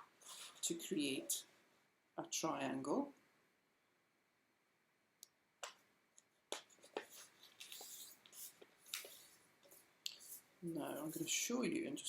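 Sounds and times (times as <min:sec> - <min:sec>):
paper rustling: 0:00.2 - 0:00.6, 0:06.5 - 0:11.4
paper crinkling: 0:06.5 - 0:11.4.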